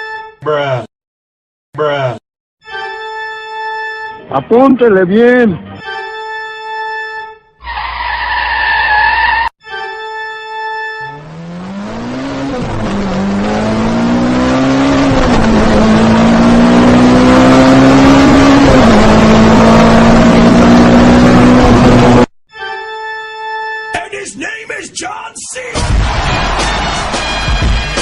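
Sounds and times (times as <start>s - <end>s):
car engine accelerating through gears: 11.1s - 22.3s.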